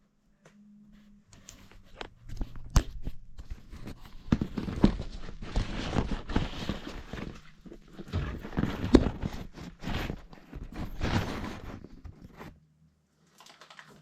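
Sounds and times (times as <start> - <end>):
scraping rustles: 3.5 - 12.6.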